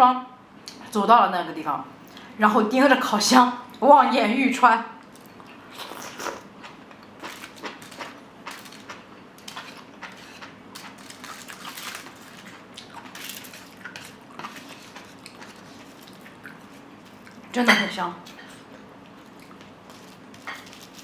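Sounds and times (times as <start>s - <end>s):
person chewing: 5.1s - 17.5s, 18.3s - 21.0s.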